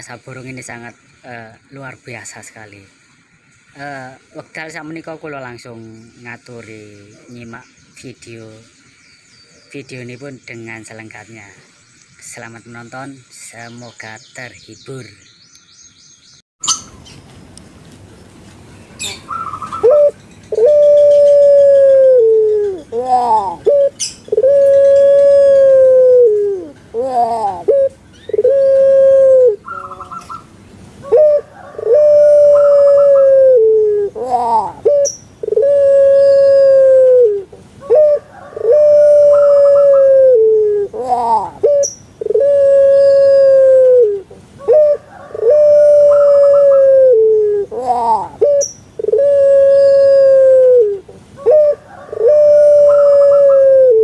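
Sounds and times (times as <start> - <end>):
dove cooing: 19.0 - 54.0.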